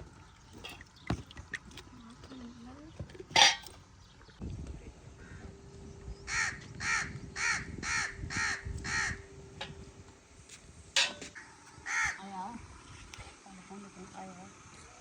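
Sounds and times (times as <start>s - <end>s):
crow cawing: 6.3s - 9.2s, 11.4s - 12.3s.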